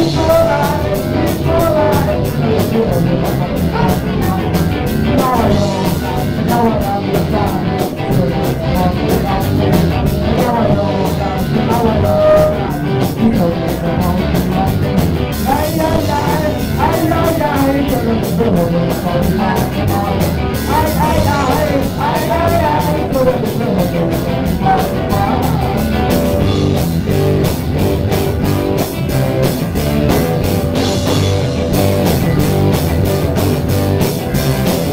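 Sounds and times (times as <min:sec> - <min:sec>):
person singing: 0:00.0 - 0:26.8
drums on cymbals: 0:00.0 - 0:34.9
guitar: 0:00.0 - 0:34.9
rock band playing: 0:00.0 - 0:34.9.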